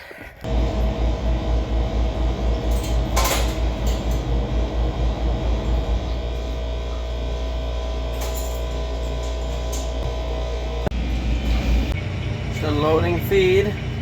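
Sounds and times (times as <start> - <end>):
feed mixer rhythmic throb: 0.5 - 8.1
metal clank: 2.5 - 4.4.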